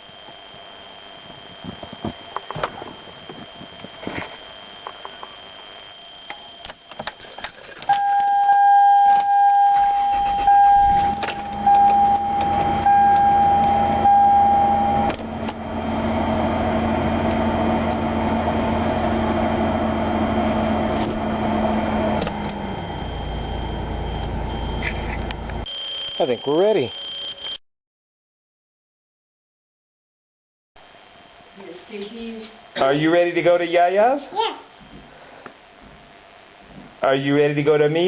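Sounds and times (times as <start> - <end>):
electronic warning chime: 7.9 - 27.6
car engine starting and idling: 9.3 - 25.7.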